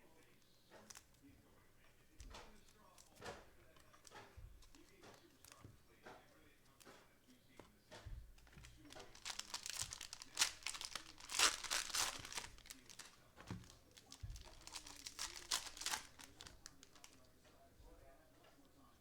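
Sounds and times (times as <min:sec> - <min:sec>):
cellophane wrapper crinkling: 0:08.4 - 0:17.3.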